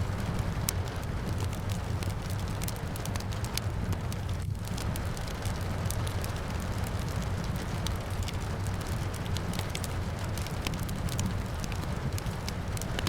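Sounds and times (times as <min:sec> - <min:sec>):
rain falling: 0:00.0 - 0:13.0
wood fire crackling and popping: 0:00.0 - 0:13.0.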